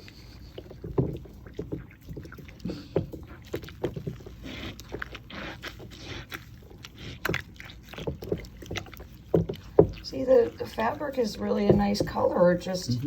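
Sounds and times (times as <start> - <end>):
water splashing and squelching: 0.0 - 13.0.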